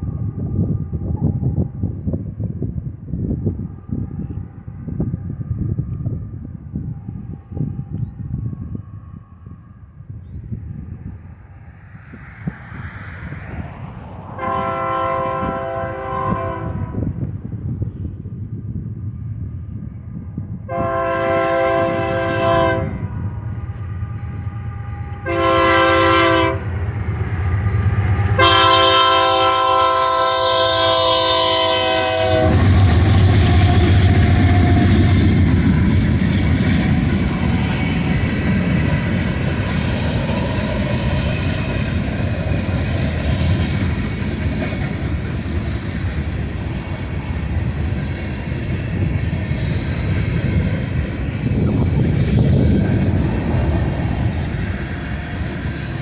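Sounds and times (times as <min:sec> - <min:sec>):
train rumbling past: 0:00.0 - 0:56.0
locomotive air horn: 0:14.4 - 0:17.2, 0:20.7 - 0:23.2, 0:24.0 - 0:35.6.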